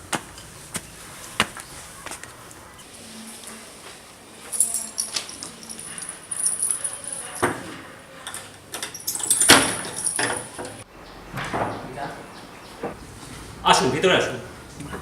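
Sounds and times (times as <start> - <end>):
keys jangling: 4.4 - 7.7, 8.3 - 10.8.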